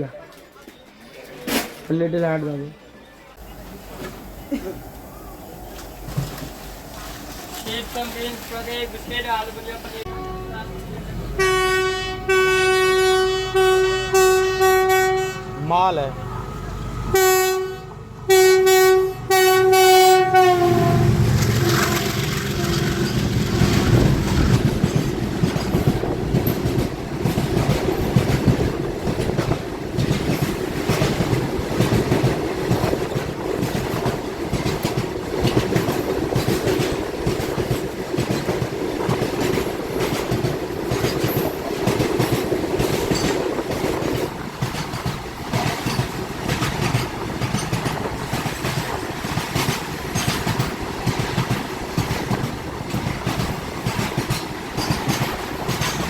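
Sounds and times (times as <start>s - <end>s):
train wheels clattering: 20.4s - 56.0s.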